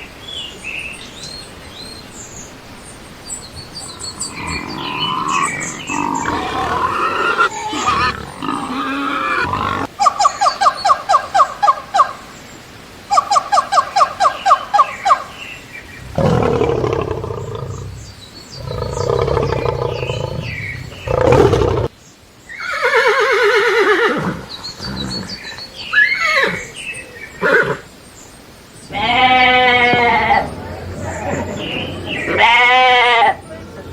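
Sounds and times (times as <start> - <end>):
deep rough roar-like calls: 3.7 - 9.9, 16.0 - 21.9
fast pulsed animal calls: 3.8 - 9.9, 16.0 - 21.9.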